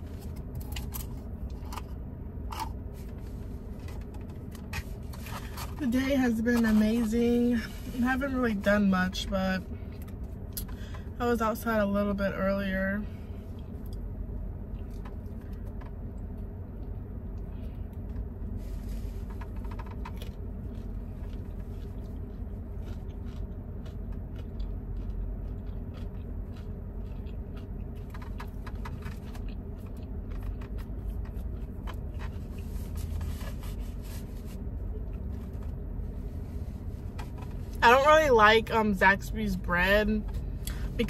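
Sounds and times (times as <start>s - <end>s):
steady low hum: 0.0s - 41.0s
chewing crunchy food: 19.1s - 33.3s.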